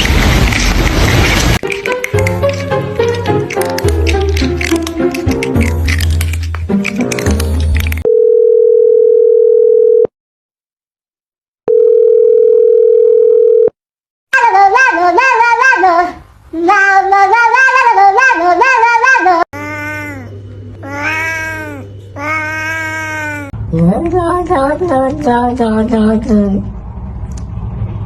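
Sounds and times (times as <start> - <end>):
music: 1.6 - 8.0
high wavering voice: 14.4 - 24.0.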